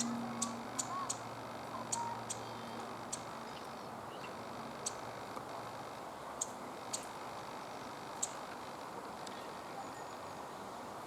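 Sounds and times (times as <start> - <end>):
bird call notes: 0.0 - 3.2.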